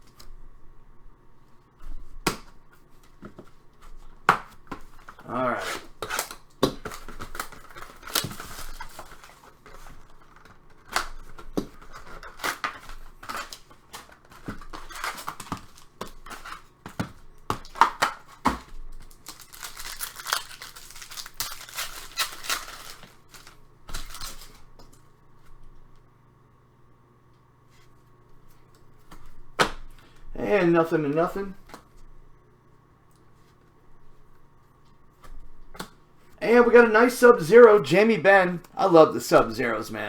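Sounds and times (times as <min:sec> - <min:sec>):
wrappers tearing and crinkling: 0:05.0 - 0:16.7, 0:17.6 - 0:24.7.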